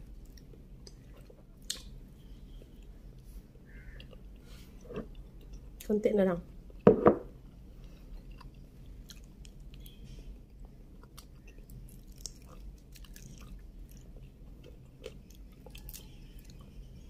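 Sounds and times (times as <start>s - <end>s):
close chewing and mouth sounds: 0.0s - 6.0s, 7.4s - 17.0s.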